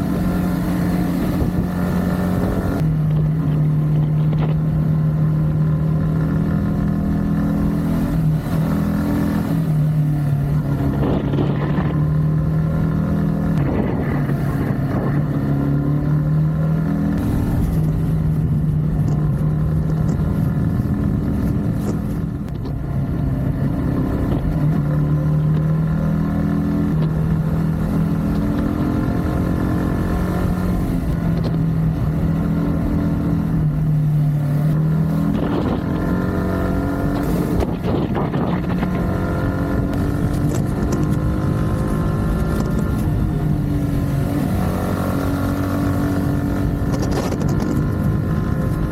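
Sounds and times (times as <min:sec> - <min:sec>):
motorcycle engine and exhaust: 0:00.0 - 0:48.9.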